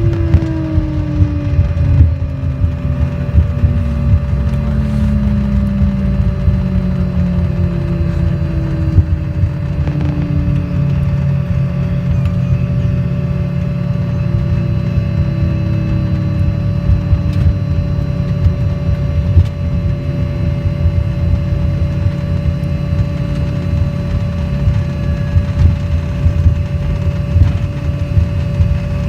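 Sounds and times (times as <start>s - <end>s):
airliner cabin engine rumble: 0.0s - 29.0s
high engine whine: 0.0s - 29.0s
low tones falling in pitch: 0.0s - 29.0s.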